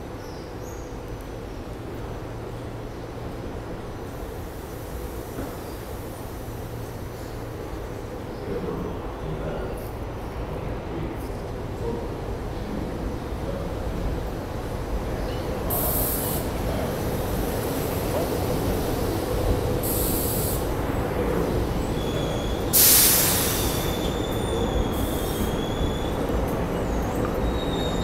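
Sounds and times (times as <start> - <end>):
train wheels rumbling on rail: 0.0 - 28.0
loud burst of hiss: 15.7 - 19.0, 19.7 - 20.8, 22.6 - 25.8
high wheel squeal: 22.0 - 28.0.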